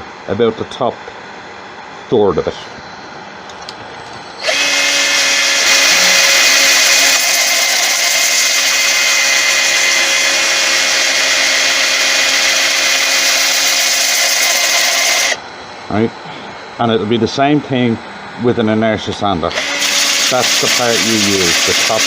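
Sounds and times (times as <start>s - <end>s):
power sander on wood: 4.4s - 15.4s, 19.5s - 22.0s.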